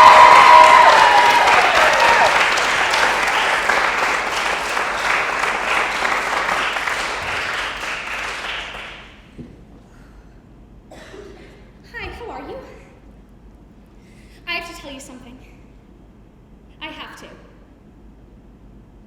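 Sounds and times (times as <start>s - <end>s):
whoops and cheers: 0.0s - 3.6s
audience applauding: 0.0s - 9.2s.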